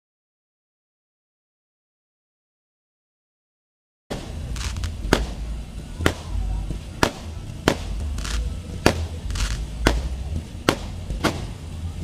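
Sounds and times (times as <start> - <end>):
firework bangs: 4.1 - 11.8
firework hiss: 4.1 - 12.0.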